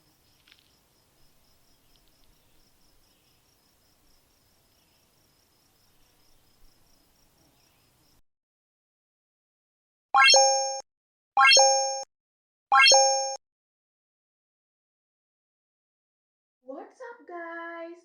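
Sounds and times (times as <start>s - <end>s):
insect chirping: 0.0s - 8.2s.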